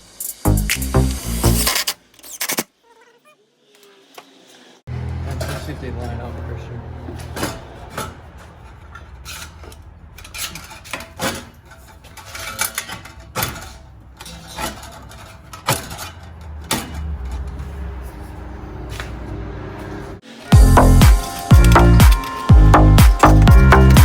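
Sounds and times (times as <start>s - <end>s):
metal pipes clanking: 4.9s - 24.0s.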